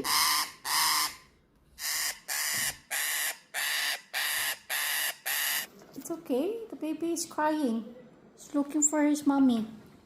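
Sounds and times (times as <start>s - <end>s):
piglet squealing: 0.0s - 1.2s, 1.8s - 5.7s.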